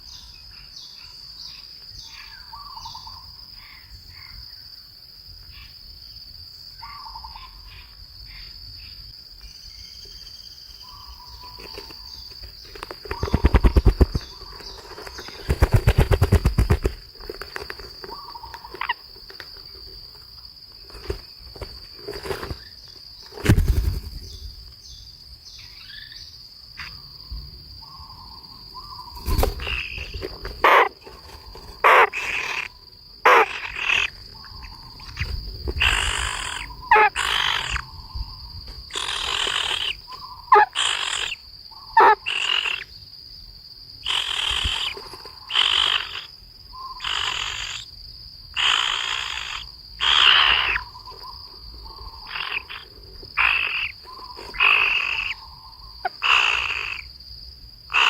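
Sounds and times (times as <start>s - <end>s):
high insect drone: 0.0s - 58.0s
harsh animal calls: 29.0s - 37.9s, 38.9s - 42.9s, 44.0s - 47.9s, 48.6s - 57.1s.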